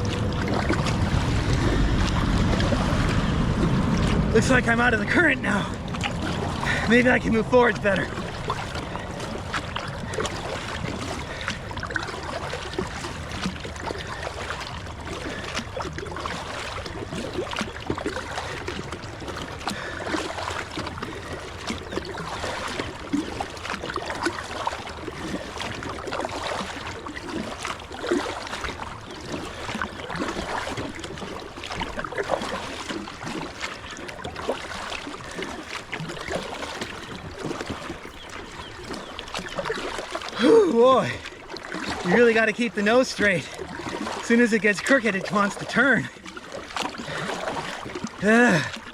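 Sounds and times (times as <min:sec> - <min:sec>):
kayak paddle splashing: 0:00.0 - 0:48.9
water running along hull: 0:00.0 - 0:48.9.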